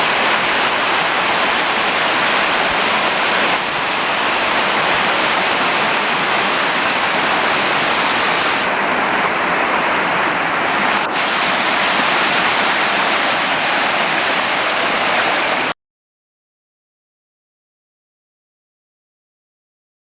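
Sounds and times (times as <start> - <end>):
waterfall rushing: 0.0 - 15.8.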